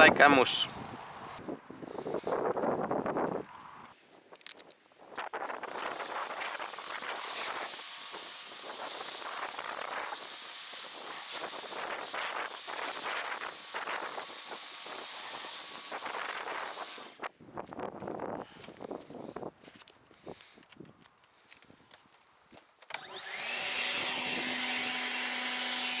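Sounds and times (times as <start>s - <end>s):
pressure washer spraying foam: 5.4s - 17.2s.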